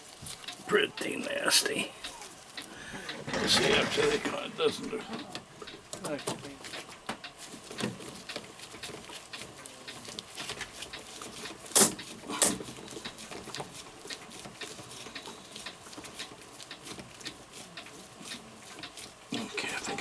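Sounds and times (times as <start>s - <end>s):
light clicks and taps: 5.1s - 20.0s.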